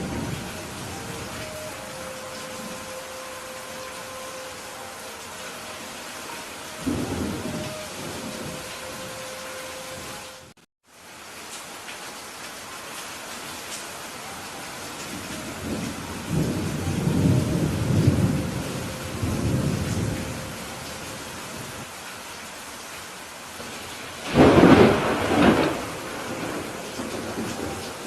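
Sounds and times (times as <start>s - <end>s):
steady rain: 0.0s - 28.0s
rolling thunder rumble: 6.7s - 10.4s, 15.4s - 20.9s, 24.2s - 28.0s
sharp thunderclap: 24.2s - 27.7s.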